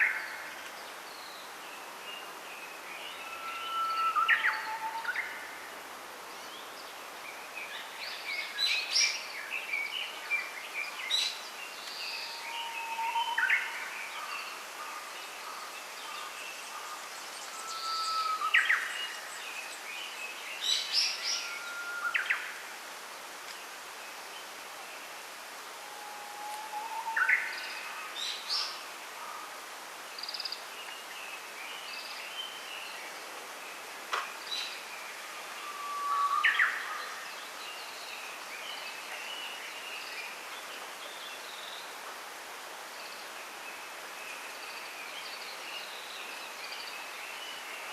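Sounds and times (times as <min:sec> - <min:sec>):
soft hiss of grove: 0:00.0 - 0:47.9.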